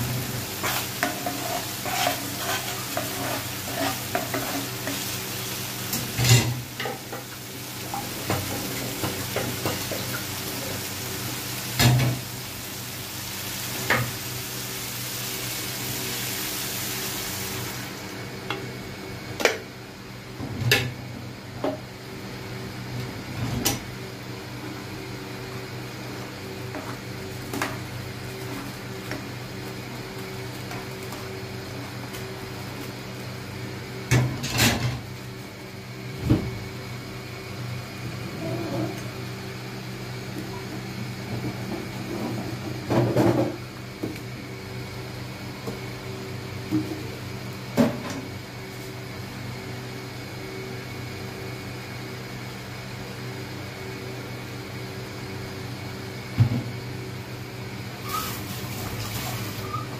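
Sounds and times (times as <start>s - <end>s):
masala sizzling in oil: 0.0s - 18.4s, 58.0s - 59.9s
spatula stirring: 0.6s - 5.1s.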